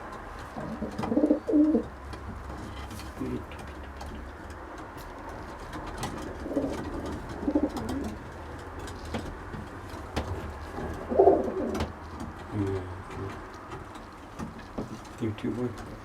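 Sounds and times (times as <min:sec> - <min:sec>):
pigeons cooing: 0:00.5 - 0:02.0, 0:05.9 - 0:08.8, 0:10.4 - 0:13.5.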